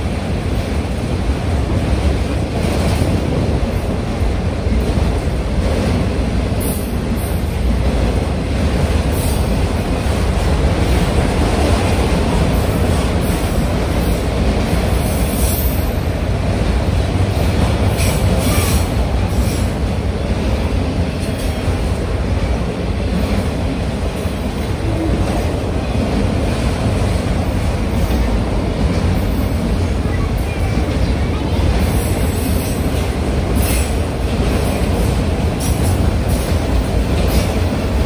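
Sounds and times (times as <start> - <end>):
freight train wheels rumbling on rail: 0.0 - 38.0.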